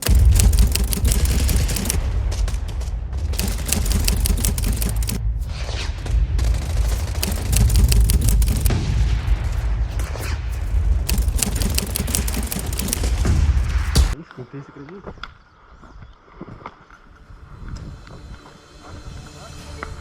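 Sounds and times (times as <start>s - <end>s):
airsoft guns firing in bursts: 0.0s - 2.0s, 3.3s - 5.2s, 6.5s - 8.7s, 11.1s - 13.4s.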